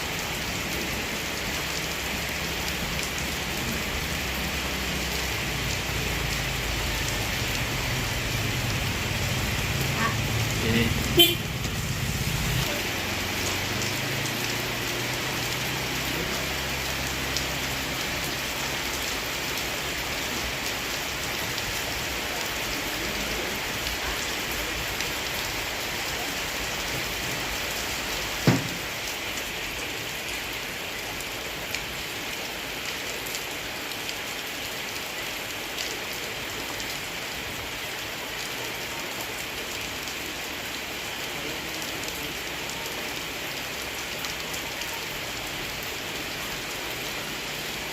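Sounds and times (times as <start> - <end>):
steady rain: 0.0 - 47.9
sharp knock: 28.4 - 28.8.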